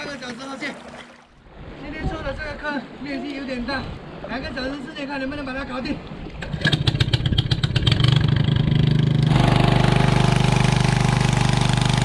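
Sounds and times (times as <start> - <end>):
water pump engine running: 8.6 - 12.0.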